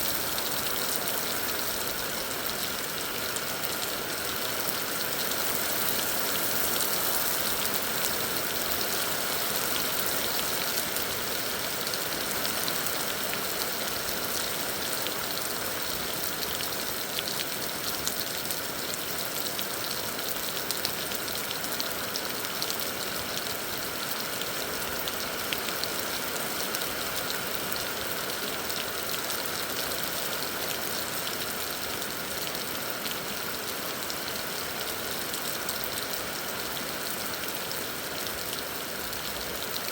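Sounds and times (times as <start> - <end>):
heavy rain hissing: 0.0 - 16.3.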